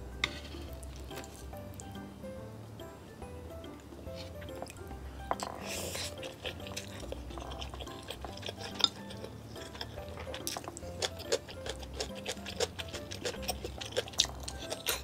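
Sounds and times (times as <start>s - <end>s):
wet chewing and mouth sounds: 3.8s - 15.0s.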